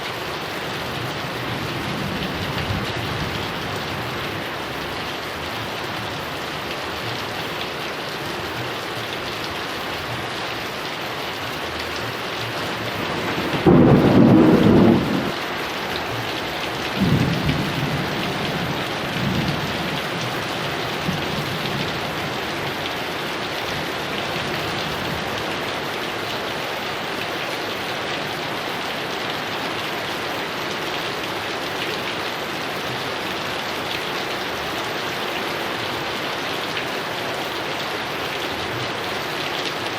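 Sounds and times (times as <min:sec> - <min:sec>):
heavy rain falling: 0:00.0 - 0:39.9
thunderclap: 0:12.9 - 0:15.4
rolls of thunder: 0:13.0 - 0:15.4.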